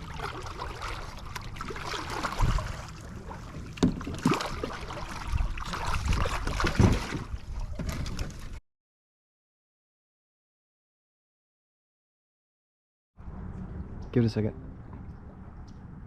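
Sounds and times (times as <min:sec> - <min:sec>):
knocks and splashes against hull: 0:00.0 - 0:08.6
wind rumbling on microphone: 0:02.0 - 0:08.6, 0:13.2 - 0:16.0.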